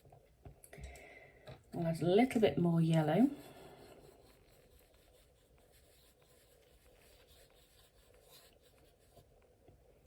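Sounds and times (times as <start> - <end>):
brush brushing on card: 2.3 - 9.4.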